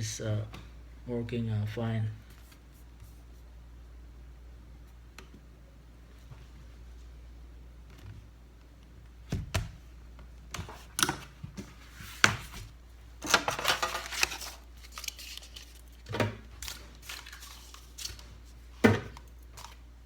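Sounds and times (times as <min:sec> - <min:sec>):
rustling and scraping: 0:11.5 - 0:18.8.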